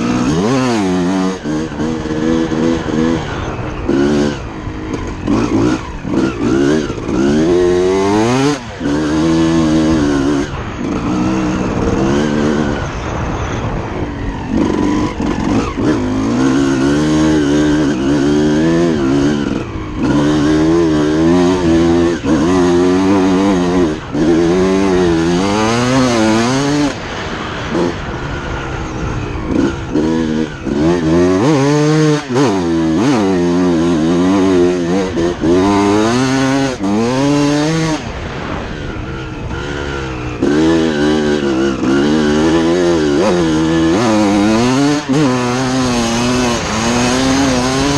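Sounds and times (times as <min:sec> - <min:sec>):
motocross engine revving: 0:00.0 - 0:47.9.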